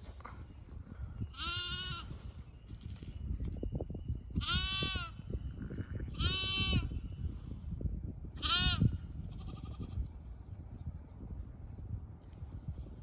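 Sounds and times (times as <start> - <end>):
lamb bleating: 1.4 - 2.1, 4.4 - 5.2, 6.2 - 6.9, 8.4 - 10.0
rustling and handling noise: 2.2 - 3.6.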